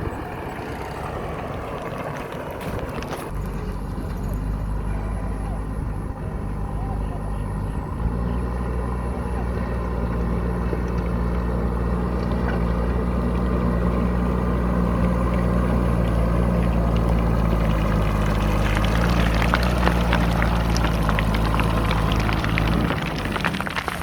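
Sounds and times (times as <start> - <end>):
diesel engine under load: 0.0 - 24.0
gravel pouring from bucket: 16.1 - 24.0.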